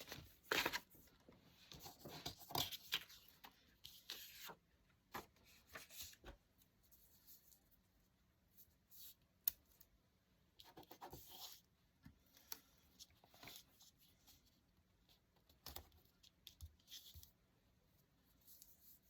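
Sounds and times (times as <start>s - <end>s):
paper rustling and scratching: 0.0s - 7.6s.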